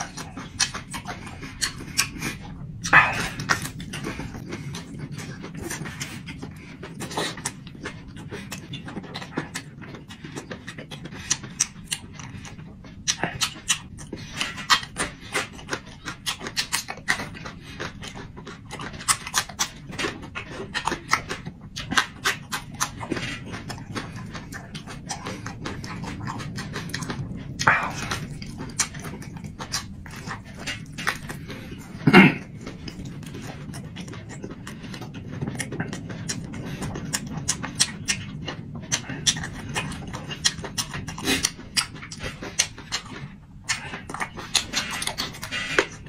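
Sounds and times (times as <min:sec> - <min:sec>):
wet mouth smacks while chewing: 0:00.0 - 0:46.0.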